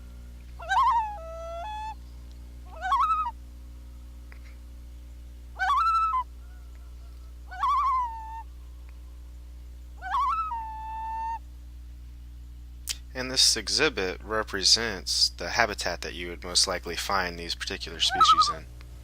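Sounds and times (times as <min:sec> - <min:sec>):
geese honking: 0:00.6 - 0:02.0, 0:02.7 - 0:03.3, 0:05.6 - 0:08.4, 0:10.0 - 0:11.4, 0:18.0 - 0:18.6.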